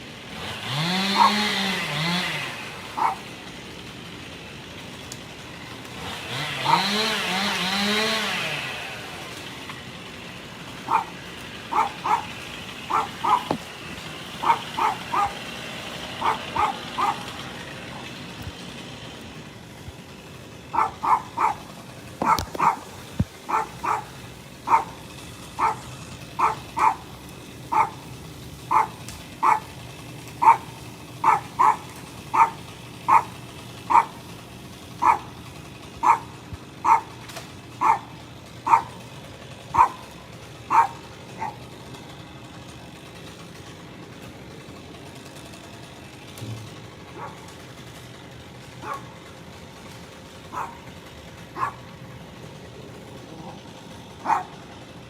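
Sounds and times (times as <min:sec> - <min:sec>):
dog barking: 0:01.1 - 0:01.5, 0:03.0 - 0:03.3, 0:10.8 - 0:13.6, 0:14.4 - 0:15.4, 0:16.2 - 0:17.3, 0:20.7 - 0:22.9, 0:23.5 - 0:24.1, 0:24.7 - 0:25.0, 0:25.6 - 0:27.1, 0:27.7 - 0:28.0, 0:28.7 - 0:29.7, 0:30.4 - 0:33.3, 0:33.9 - 0:34.2, 0:35.0 - 0:35.3, 0:36.0 - 0:37.1, 0:37.8 - 0:39.0, 0:39.7 - 0:40.0, 0:40.7 - 0:41.6, 0:47.1 - 0:47.5, 0:48.8 - 0:49.1, 0:50.5 - 0:50.9, 0:51.6 - 0:51.8, 0:54.2 - 0:54.6.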